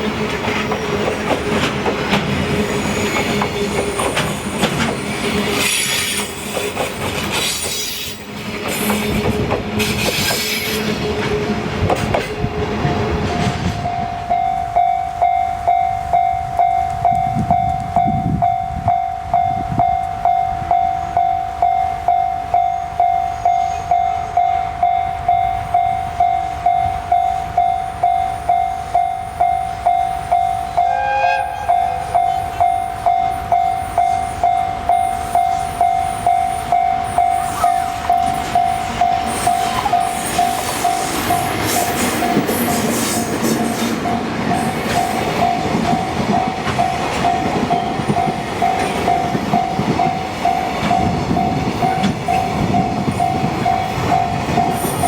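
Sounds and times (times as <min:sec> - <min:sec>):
passing train rumble: 0:00.0 - 0:55.0
level crossing warning bell: 0:13.4 - 0:55.0.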